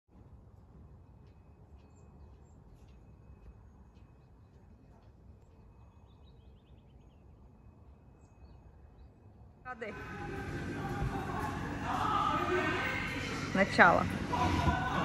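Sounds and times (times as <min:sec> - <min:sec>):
birds chirping and trilling: 0:05.4 - 0:10.7
low steady rumble: 0:09.9 - 0:15.0.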